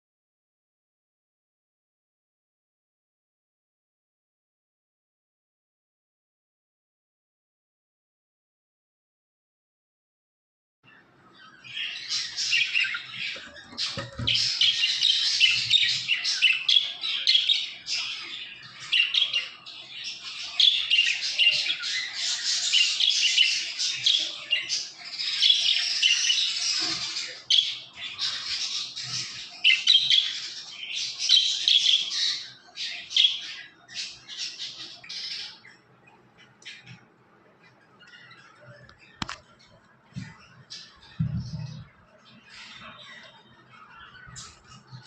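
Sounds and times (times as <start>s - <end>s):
caged birds squawking and chirping: 10.9s - 45.0s.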